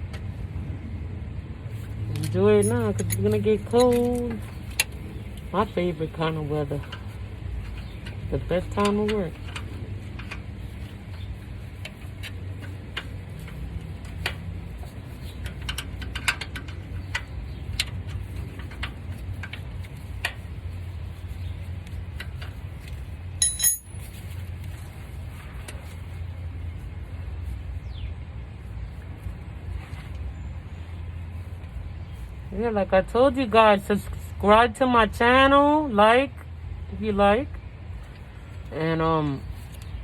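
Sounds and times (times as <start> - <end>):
low background rumble: 0.0 - 40.0
loud high ringing clink: 23.4 - 24.1.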